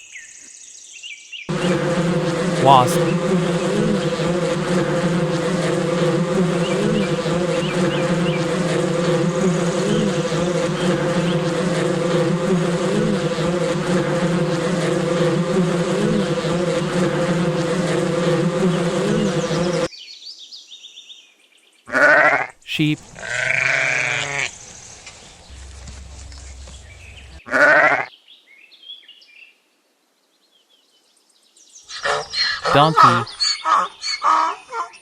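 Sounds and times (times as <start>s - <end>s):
wasps buzzing: 1.5s - 19.9s.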